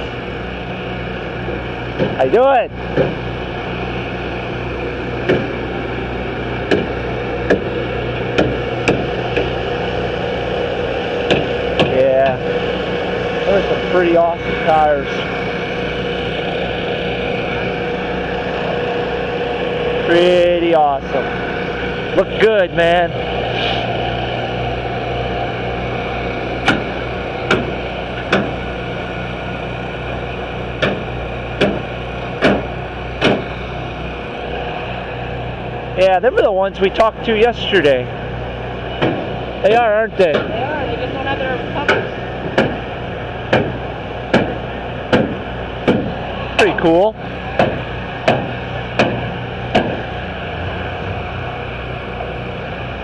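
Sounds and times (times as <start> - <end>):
steady low hum: 0.0 - 53.0
sharp short knocks: 6.7 - 7.7, 8.3 - 9.5, 11.3 - 12.4, 27.5 - 28.6, 30.8 - 33.5, 41.9 - 42.8, 43.5 - 46.2, 47.6 - 50.0
hammer strikes: 8.3 - 9.5, 11.3 - 12.4, 27.5 - 28.6, 30.8 - 33.4, 41.9 - 42.8, 43.5 - 46.2, 47.6 - 50.0.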